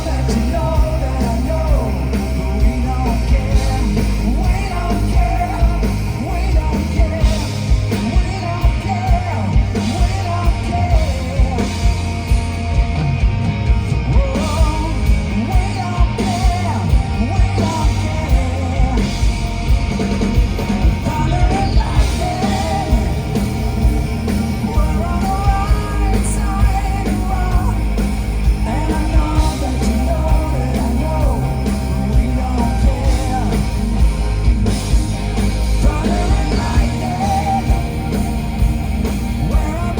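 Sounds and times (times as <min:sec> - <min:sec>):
hard rock band playing: 0:00.0 - 0:39.9
person singing: 0:21.0 - 0:34.4, 0:35.7 - 0:38.5.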